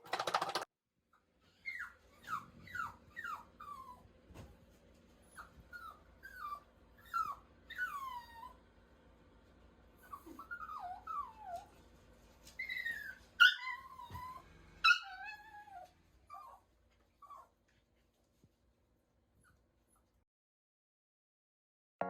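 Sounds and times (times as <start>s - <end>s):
dog whining: 1.5s - 4.1s, 5.2s - 8.6s, 10.0s - 11.7s, 12.6s - 17.5s.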